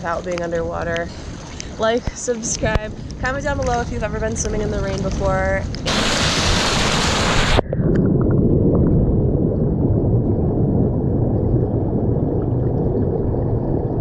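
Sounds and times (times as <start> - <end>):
faint bubble ticks: 0.0 - 5.9
muffled underwater rumble: 0.0 - 14.0
water hissing at surface: 4.8 - 7.6.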